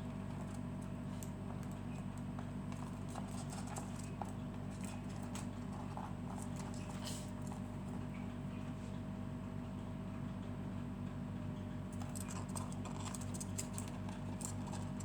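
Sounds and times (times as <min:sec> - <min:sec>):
low electrical hum: 0:00.0 - 0:15.0
light clicks and taps: 0:00.2 - 0:08.3.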